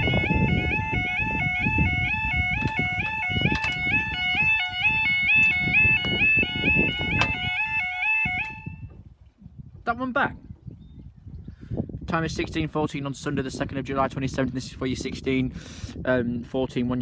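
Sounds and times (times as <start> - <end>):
warbling crossing alarm: 0.0 - 9.0
sharp clicks: 2.6 - 4.3, 7.1 - 8.6.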